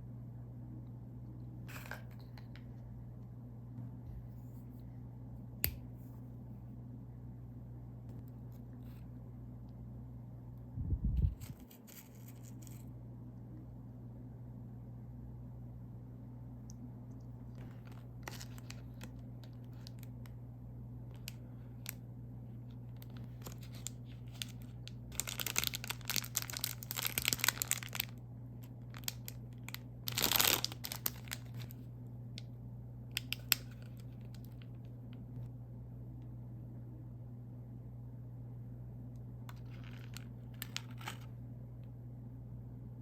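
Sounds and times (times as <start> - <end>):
steady low hum: 0.0 - 43.0
snack wrapper crinkling: 17.5 - 20.2, 23.0 - 31.8, 33.2 - 34.7, 39.5 - 41.3
wrapper tearing: 17.6 - 20.1, 23.0 - 28.2, 28.9 - 31.8, 39.5 - 41.3.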